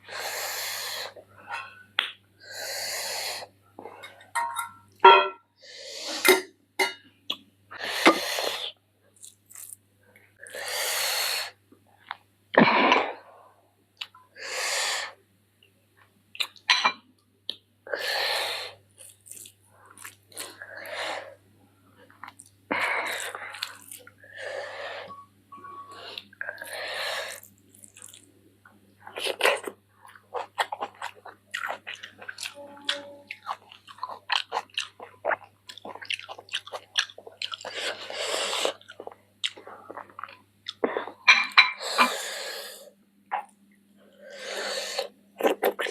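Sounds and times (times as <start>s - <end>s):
chewing and biting: 33.3s - 40.8s.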